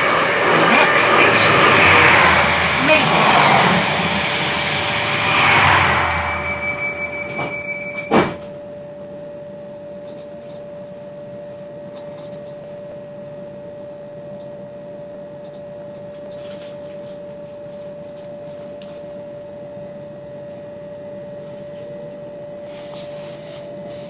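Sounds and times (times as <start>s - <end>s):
loud rushing noise: 0.0s - 8.4s.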